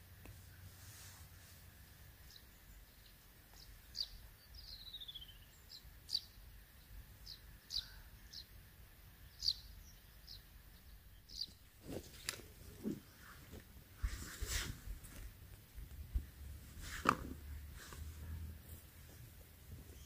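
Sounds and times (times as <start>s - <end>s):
birds chirping: 1.6s - 20.0s
bird trill: 3.9s - 6.4s, 7.2s - 8.5s, 9.2s - 11.7s.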